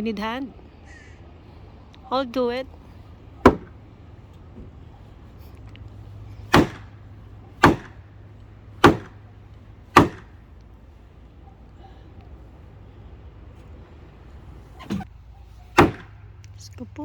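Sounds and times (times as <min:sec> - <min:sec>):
heavy hammer blows on wood: 0:02.9 - 0:10.9, 0:15.7 - 0:16.4.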